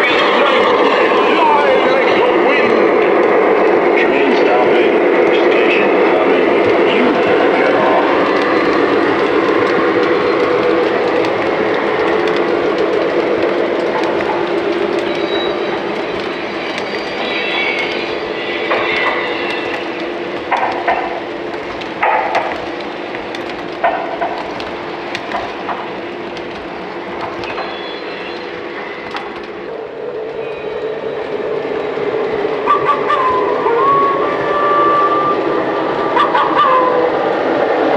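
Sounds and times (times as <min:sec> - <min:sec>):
wheels clicking over rail joints: 0:00.0 - 0:33.2.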